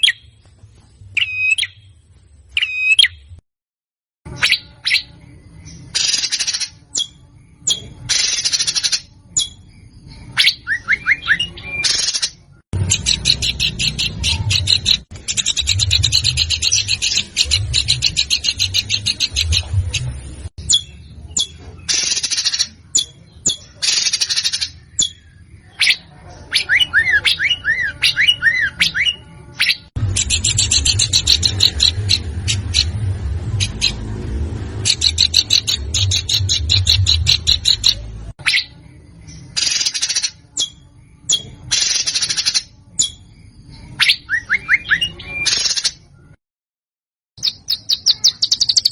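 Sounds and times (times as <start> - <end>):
songbird harsh notes and trills: 0.0 - 3.4, 4.3 - 46.4, 47.4 - 48.9
bird whistled notes: 1.2 - 1.9, 2.6 - 3.2, 4.3 - 32.9, 39.5 - 45.8
low hum: 12.8 - 20.6, 30.0 - 39.4.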